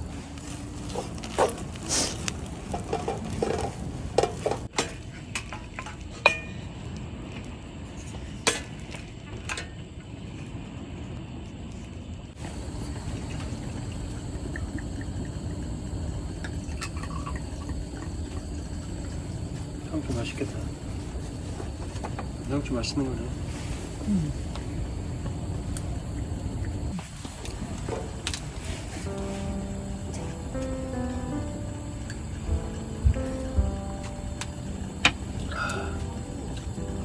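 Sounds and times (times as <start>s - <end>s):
steady hiss: 0.0s - 4.7s, 12.3s - 37.0s
dishes and cutlery clinking: 2.7s - 6.6s
steady low rumble: 12.4s - 37.0s.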